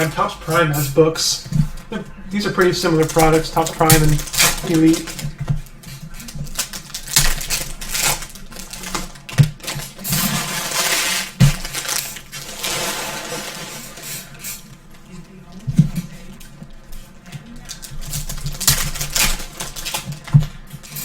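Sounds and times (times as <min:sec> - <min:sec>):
card packs rustling: 0:00.0 - 0:21.0
cards clicking and tapping: 0:00.8 - 0:10.3.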